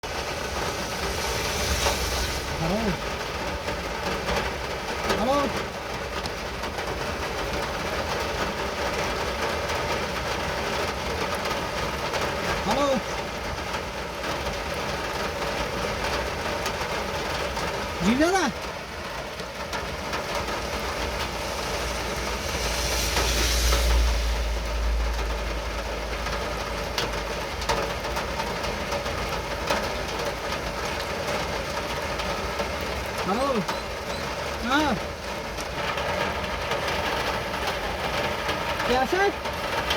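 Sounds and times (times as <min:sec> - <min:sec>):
low rumble: 0:00.0 - 0:04.7, 0:19.4 - 0:28.0
rain falling: 0:00.0 - 0:39.9.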